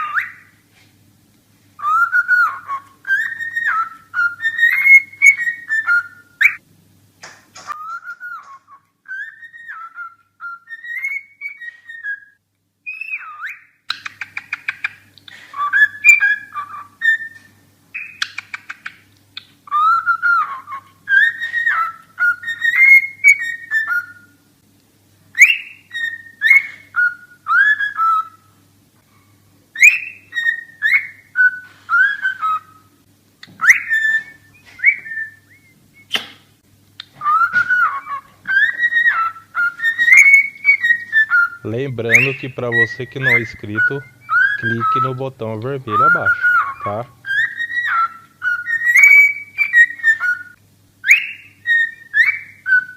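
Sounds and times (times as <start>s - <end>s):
cockatiel whistling: 0.0s - 0.6s, 1.8s - 6.6s, 7.7s - 24.4s, 25.3s - 28.6s, 29.7s - 52.9s
buzzy chattering bird notes: 12.9s - 24.3s, 33.6s - 52.9s.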